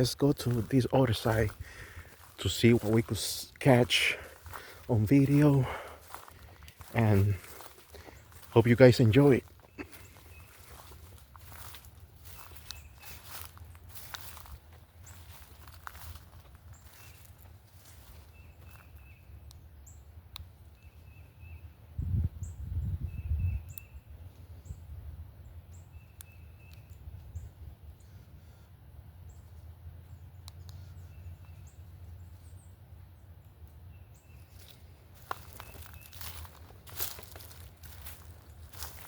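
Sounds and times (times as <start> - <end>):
bird calling: 0.0 - 17.3.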